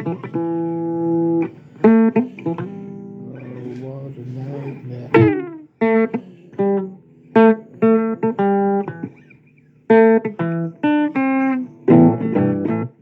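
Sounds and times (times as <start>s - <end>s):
blues guitar playing: 0.0s - 13.0s.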